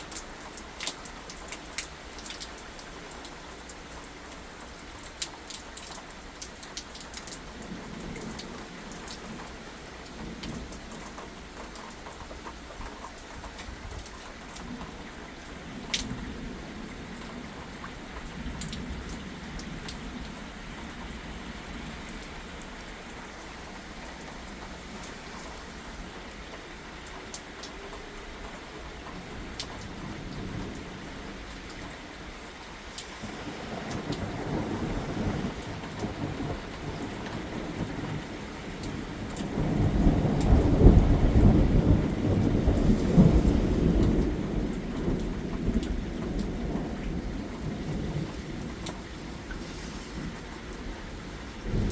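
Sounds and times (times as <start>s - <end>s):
steady rain falling: 0.0s - 51.9s
thunder rumbling: 33.2s - 51.9s.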